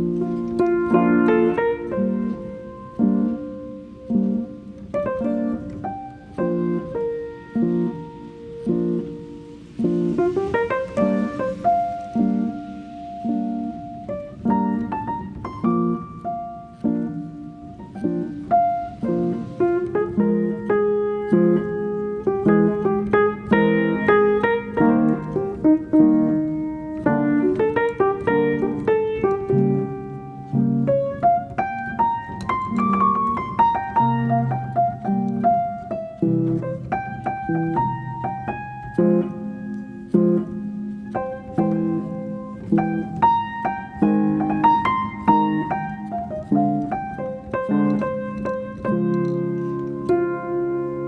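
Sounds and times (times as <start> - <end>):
piano chords ringing: 0.0 - 51.0.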